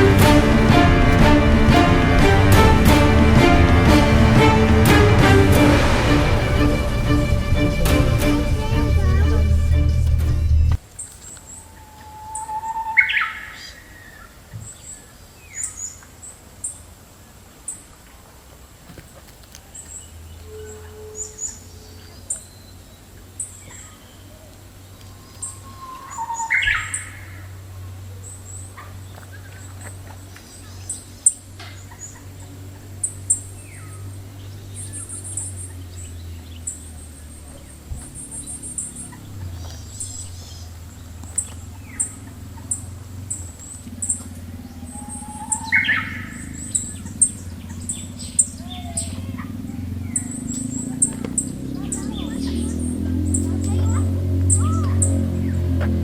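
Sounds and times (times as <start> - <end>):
steady low hum: 0.0 - 10.9, 22.8 - 56.0
birds chirping and trilling: 0.0 - 56.0.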